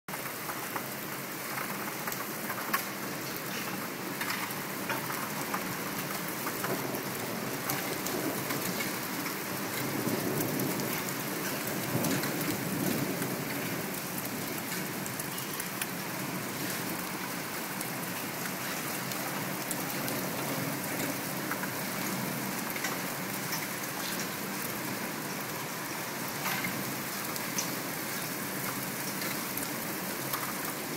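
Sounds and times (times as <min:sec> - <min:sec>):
steady rain with drops ticking: 0:00.1 - 0:30.9
low rumble of thunder: 0:07.7 - 0:15.2.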